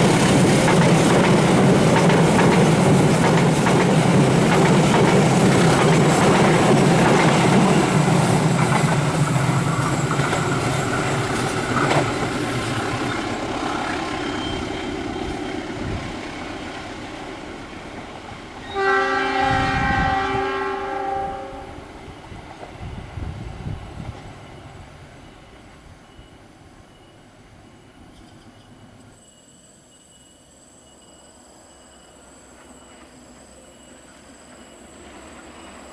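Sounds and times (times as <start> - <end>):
passenger train rolling on rails: 0.0 - 35.9
locomotive horn: 18.6 - 21.8.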